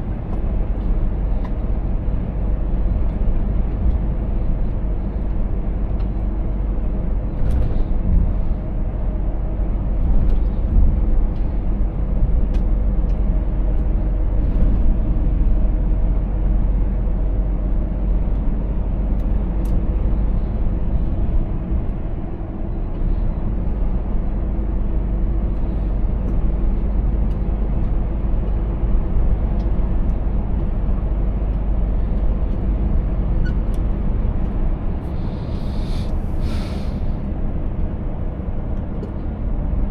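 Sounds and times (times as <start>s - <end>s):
road noise: 0.0s - 39.9s
truck diesel engine running: 0.0s - 39.9s.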